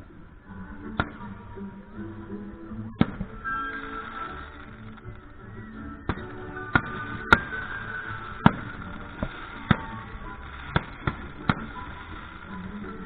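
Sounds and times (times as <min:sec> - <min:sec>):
music playing: 0:00.0 - 0:13.0
fireworks bangs: 0:05.9 - 0:12.9.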